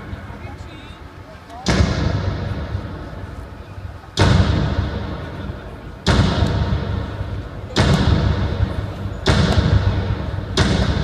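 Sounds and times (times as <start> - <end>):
fireworks booming: 4.1 - 11.0.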